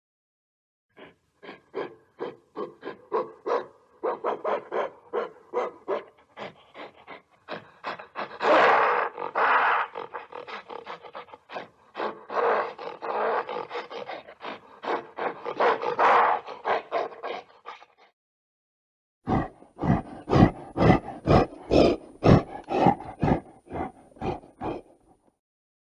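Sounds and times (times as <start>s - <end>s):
gorilla panting calls: 1.0s - 3.4s, 4.0s - 18.0s, 19.3s - 25.0s
gorilla long loud calls: 6.0s - 16.6s.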